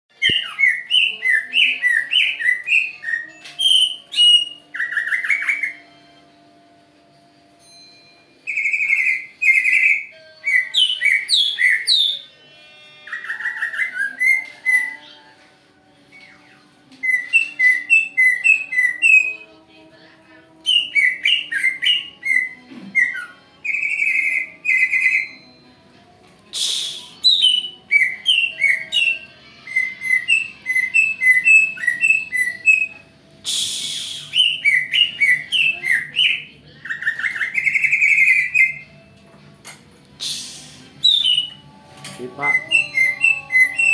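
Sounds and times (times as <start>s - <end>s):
bird chirping whistles: 33.5s - 36.4s.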